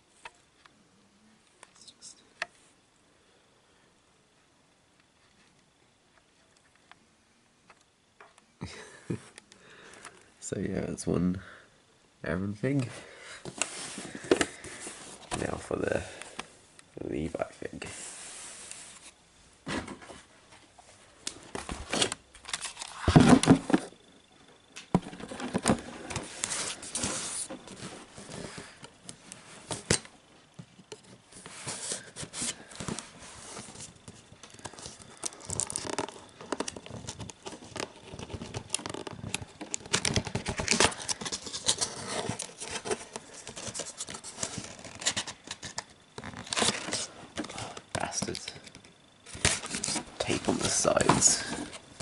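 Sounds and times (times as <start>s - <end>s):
cardboard scraping: 13.4s - 15.6s, 21.7s - 24.0s, 25.0s - 28.7s, 31.3s - 45.3s, 49.3s - 51.9s
packaging rustling: 21.4s - 23.9s, 31.4s - 52.0s.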